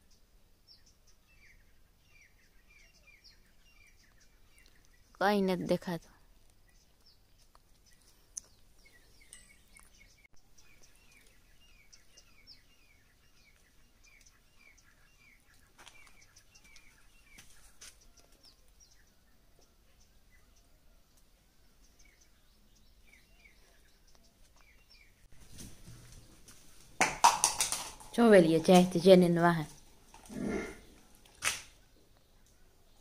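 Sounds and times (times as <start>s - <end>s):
faint birds chirping: 0.0s - 27.0s, 27.6s - 33.0s.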